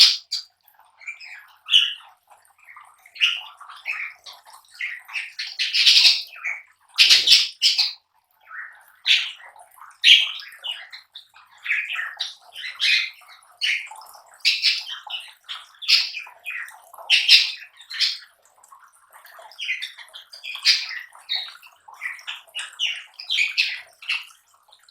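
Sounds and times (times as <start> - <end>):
birds chirping and squawking: 0.0 - 0.5, 1.2 - 2.1, 3.2 - 8.0, 9.0 - 9.4, 10.0 - 18.3, 19.6 - 24.3.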